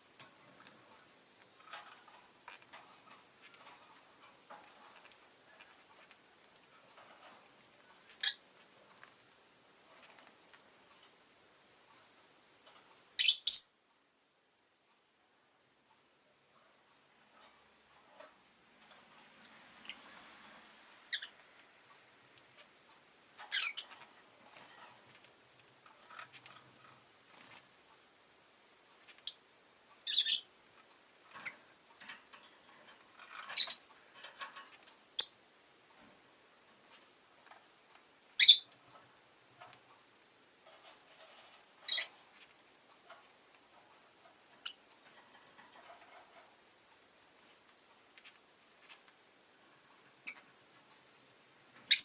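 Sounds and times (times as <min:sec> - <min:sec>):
faint ticks and rustles: 0:00.0 - 0:13.2, 0:13.8 - 0:52.0
lovebird chirping: 0:13.2 - 0:13.8, 0:21.1 - 0:21.4, 0:23.5 - 0:24.0, 0:30.0 - 0:30.5, 0:33.5 - 0:33.9, 0:38.4 - 0:38.7, 0:41.9 - 0:42.1.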